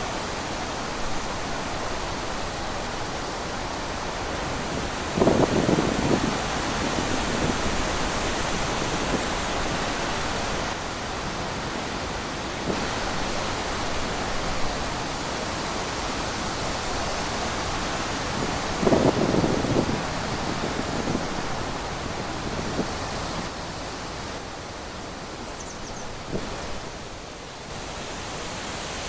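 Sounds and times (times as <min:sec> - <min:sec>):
rushing wind: 0:00.0 - 0:29.0.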